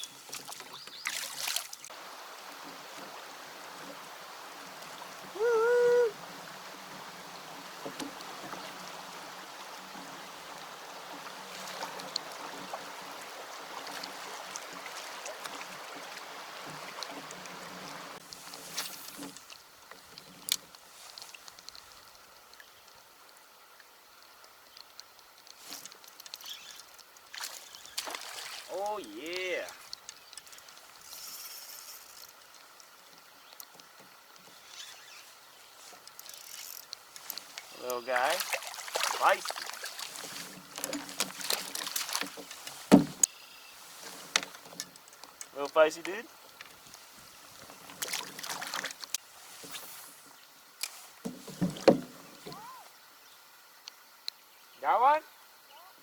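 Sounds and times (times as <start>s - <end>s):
water hissing around kayak: 0.0s - 22.3s, 27.4s - 29.7s, 30.6s - 33.1s, 34.0s - 44.9s, 45.6s - 53.4s
water drips and taps: 35.9s - 43.3s, 50.9s - 52.6s
short splashing hiss: 49.3s - 50.3s.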